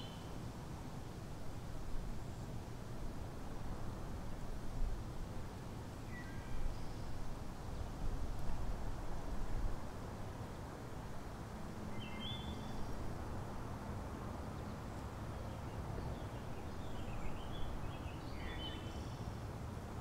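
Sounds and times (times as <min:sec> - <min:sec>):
songbird calling: 0:00.0 - 0:00.4, 0:11.9 - 0:13.0, 0:15.3 - 0:19.3
low outdoor background noise: 0:00.0 - 0:20.0.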